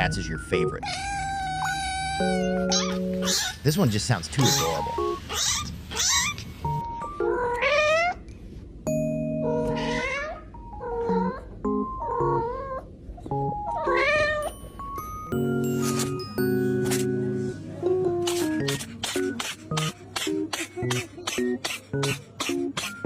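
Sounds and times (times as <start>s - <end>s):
light background music: 0.0s - 5.4s, 6.6s - 8.0s, 8.9s - 23.0s
cat meowing: 0.8s - 3.6s, 4.4s - 6.5s, 7.3s - 8.2s, 9.4s - 11.4s, 13.7s - 14.5s.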